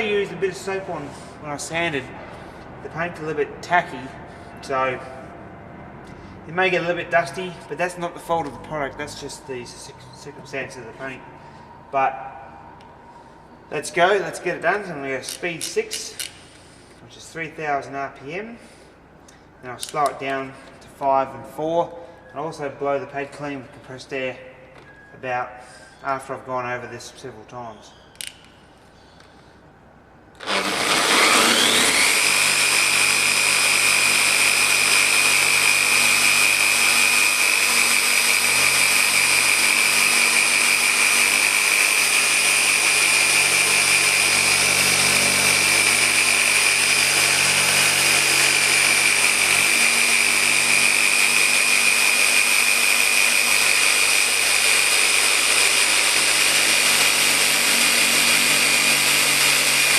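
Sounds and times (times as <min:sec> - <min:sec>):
car polisher motor whine: 0:00.0 - 0:14.2, 0:30.4 - 0:59.9.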